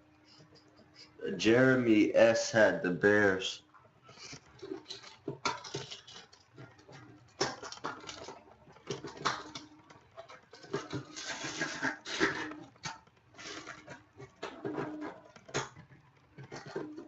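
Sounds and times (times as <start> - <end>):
cards and plastic rustling: 4.1 - 17.0.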